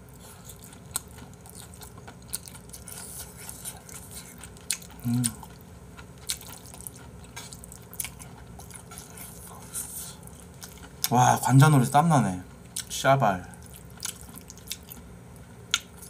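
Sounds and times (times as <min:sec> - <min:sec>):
wet chewing: 0:00.1 - 0:11.2, 0:12.6 - 0:16.0.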